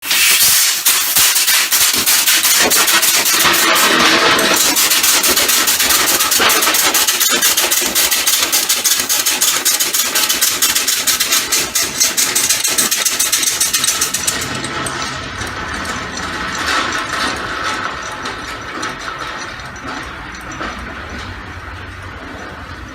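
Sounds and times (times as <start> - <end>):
air hiss: 0.0 - 2.6.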